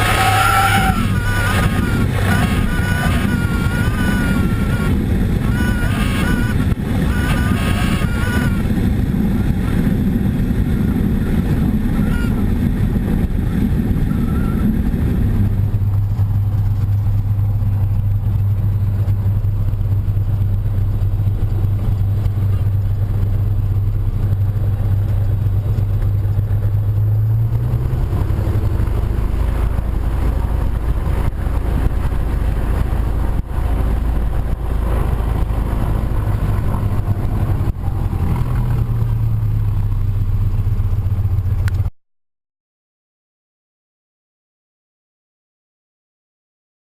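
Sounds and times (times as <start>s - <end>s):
propeller plane engine droning: 0.0s - 41.9s.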